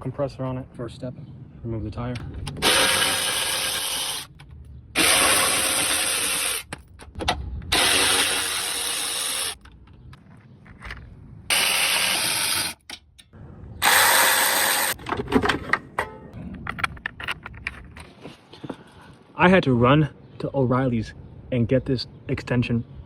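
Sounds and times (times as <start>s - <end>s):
impact wrench bursts: 2.6s - 4.4s, 5.0s - 6.7s, 7.7s - 9.6s, 11.5s - 12.8s, 13.8s - 15.0s.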